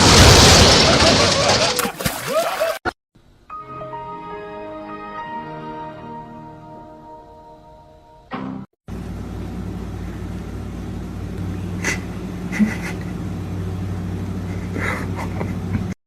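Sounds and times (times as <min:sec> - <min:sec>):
vehicle humming: 0:08.9 - 0:16.0.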